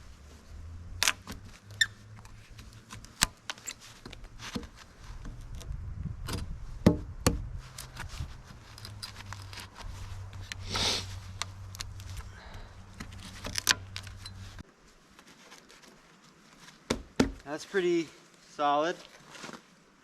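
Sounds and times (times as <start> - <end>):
brushing rustle: 0.0 - 5.8, 7.4 - 20.0
low steady hum: 0.0 - 15.0.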